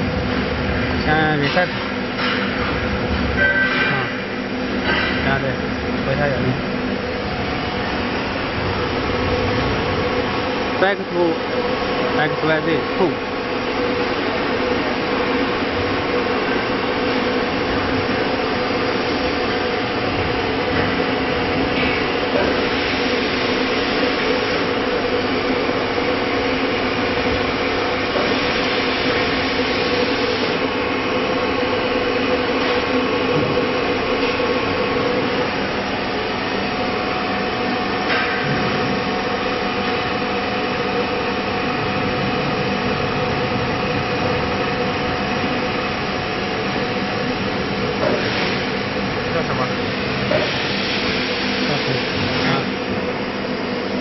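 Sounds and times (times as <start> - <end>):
cnc router running with a whine: 0.0 - 54.0.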